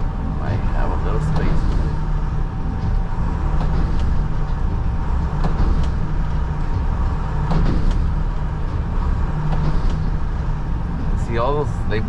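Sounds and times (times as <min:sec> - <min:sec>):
engine whine: 0:00.0 - 0:12.0
garbage truck engine running: 0:00.0 - 0:12.0
knocks and clunks from truck body: 0:02.8 - 0:10.5.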